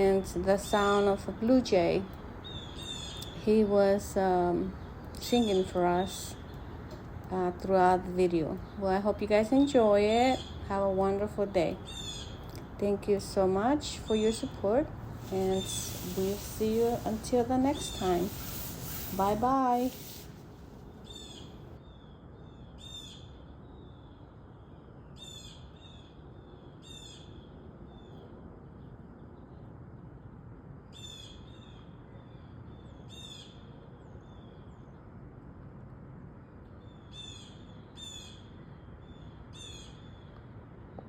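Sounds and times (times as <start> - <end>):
low background noise: 0.0 - 41.0
blue jay harsh calls: 2.4 - 3.4, 11.8 - 12.4, 15.1 - 21.6.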